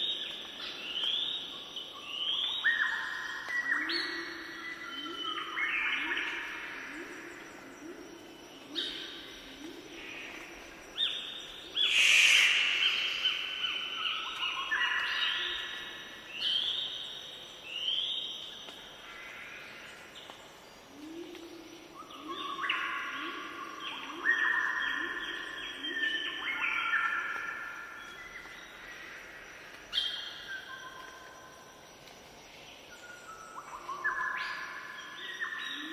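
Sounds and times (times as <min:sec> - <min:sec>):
birds singing: 0:00.0 - 0:29.1
low bird call: 0:11.8 - 0:14.2.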